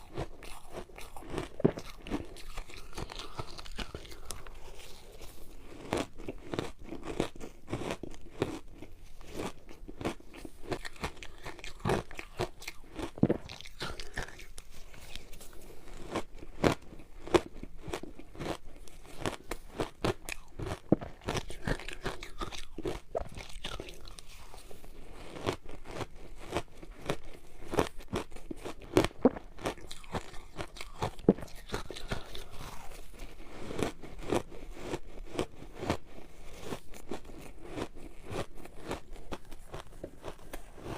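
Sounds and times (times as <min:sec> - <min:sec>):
biting and crunching ice: 0:00.0 - 0:40.9.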